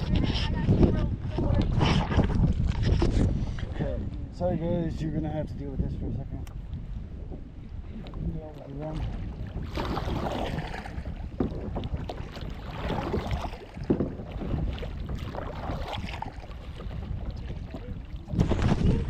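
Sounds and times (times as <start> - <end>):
water splashing around paddle board: 0.0 - 4.2, 6.5 - 19.0
wind rumbling on microphone: 0.0 - 19.0.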